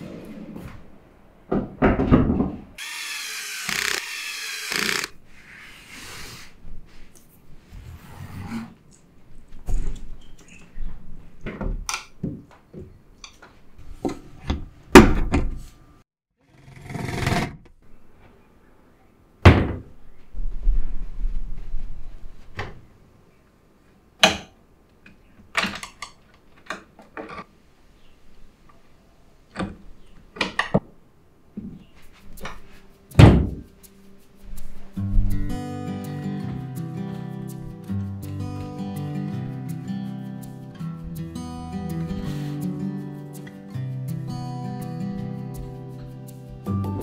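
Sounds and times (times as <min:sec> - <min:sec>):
furniture knocks and thunks: 0:33.2 - 0:33.7.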